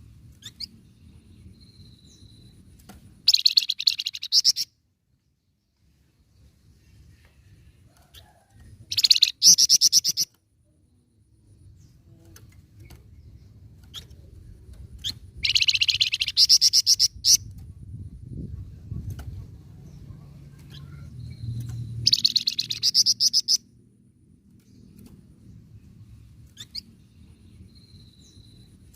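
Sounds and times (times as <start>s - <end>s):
songbird singing fast high notes: 3.3s - 4.7s, 15.4s - 17.4s, 22.0s - 23.6s.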